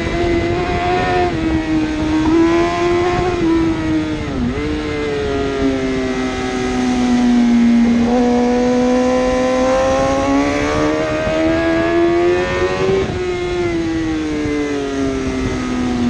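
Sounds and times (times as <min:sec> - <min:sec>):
motorbike engine accelerating hard: 0:00.0 - 0:16.0.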